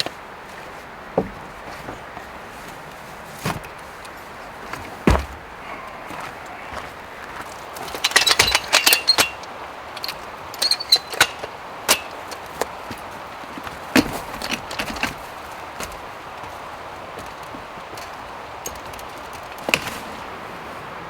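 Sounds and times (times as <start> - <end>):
hard objects clinking and knocking: 7.8 - 12.4.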